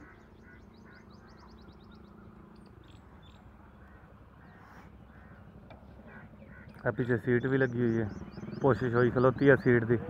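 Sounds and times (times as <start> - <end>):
short bird calls: 0.0 - 2.1.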